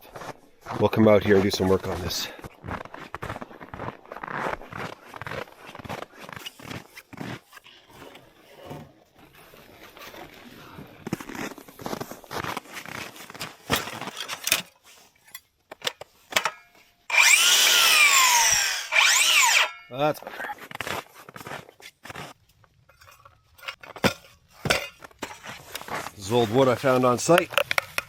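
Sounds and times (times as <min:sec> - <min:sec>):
footsteps crunching in snow: 0:00.0 - 0:14.1, 0:20.2 - 0:22.5, 0:24.4 - 0:27.4
power tool starting: 0:17.1 - 0:19.8.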